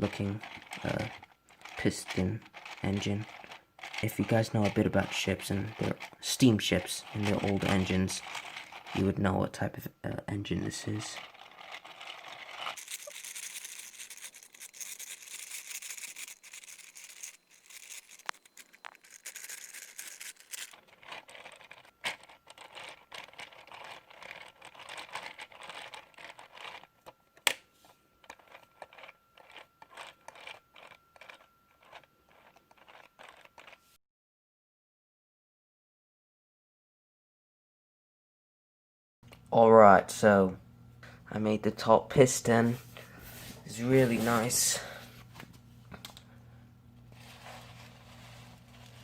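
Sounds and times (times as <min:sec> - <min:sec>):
plastic pieces rustling and scraping: 0:10.8 - 0:26.5.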